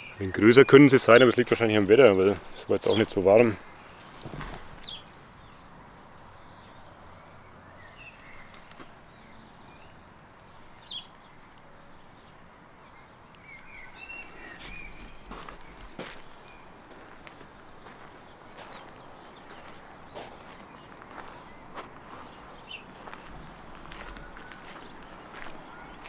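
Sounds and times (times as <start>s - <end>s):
faint bird chirps: 6.6s - 26.0s.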